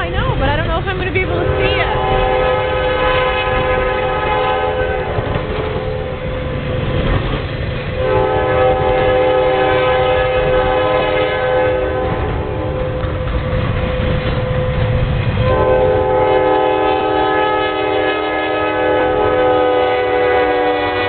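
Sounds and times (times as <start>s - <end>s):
passing train rumbling: 0.0s - 21.0s
locomotive air horn blasts: 1.3s - 6.6s, 8.0s - 13.0s, 15.4s - 21.0s.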